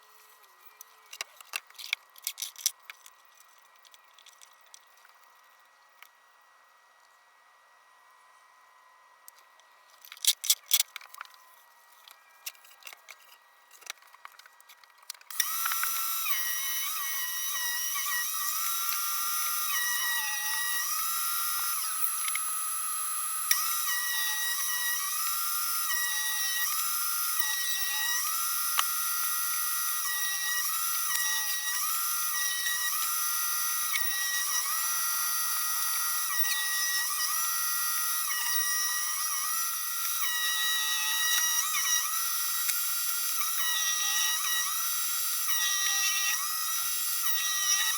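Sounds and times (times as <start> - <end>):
circular saw motor whining: 15.3 - 47.9.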